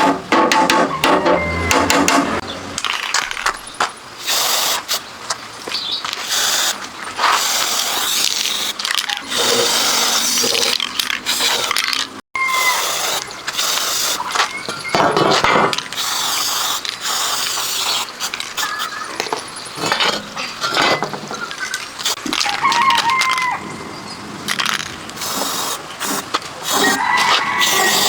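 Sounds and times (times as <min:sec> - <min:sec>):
metallic clicks and scrapes: 0:07.2 - 0:12.2.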